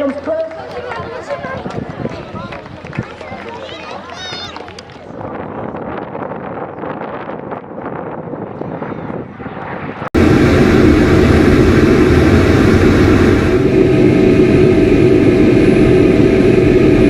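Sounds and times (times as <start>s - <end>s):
faint wind noise: 0.0s - 17.0s
aircraft engine drone: 9.3s - 17.0s.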